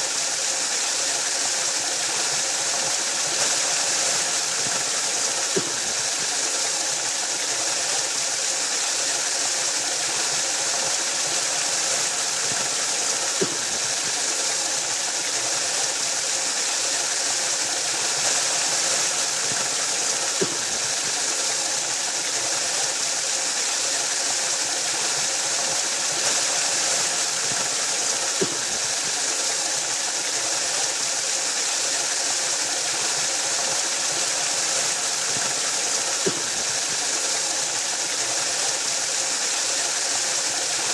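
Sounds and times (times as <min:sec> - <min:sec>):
waterfall rushing: 0:09.7 - 0:40.9.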